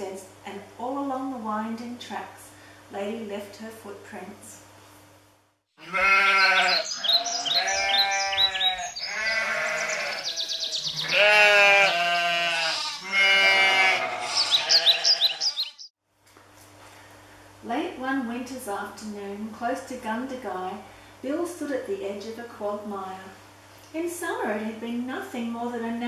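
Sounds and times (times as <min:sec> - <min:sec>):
sheep bleating: 0:05.8 - 0:15.8.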